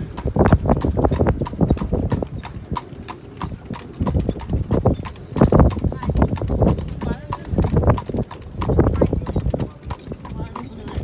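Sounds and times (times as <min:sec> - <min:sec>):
horse hooves clip-clopping: 0:00.0 - 0:11.0.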